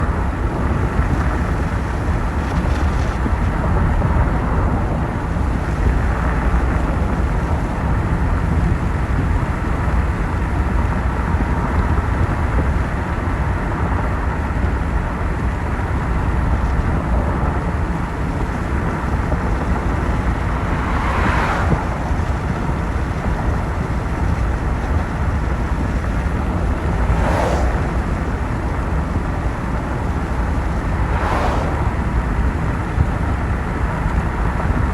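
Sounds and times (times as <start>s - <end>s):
car road noise on wet road: 0.0s - 34.9s
brief whooshes: 26.9s - 28.9s, 30.2s - 32.6s.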